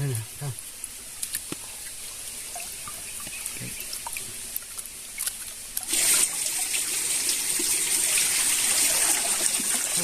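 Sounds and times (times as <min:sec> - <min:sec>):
small clicks and drips: 0:00.0 - 0:05.9
water trickling: 0:00.0 - 0:10.0.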